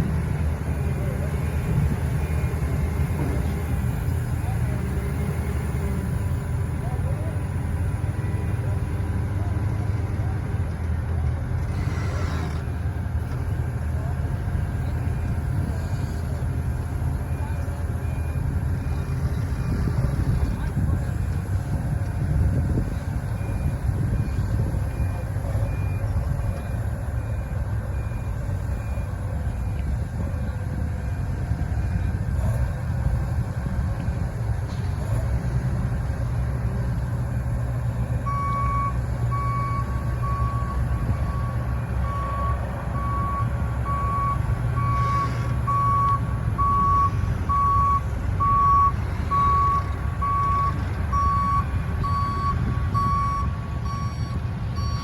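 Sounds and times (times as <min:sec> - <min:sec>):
heavy vehicle engine running: 0:00.0 - 0:55.0
reversing alarm beeping: 0:38.1 - 0:55.0.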